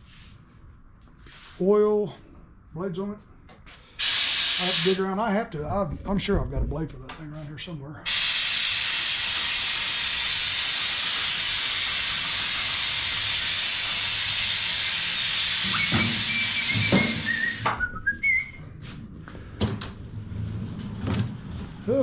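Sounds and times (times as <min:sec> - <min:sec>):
compressed air hissing: 0:03.9 - 0:05.0, 0:08.1 - 0:17.8.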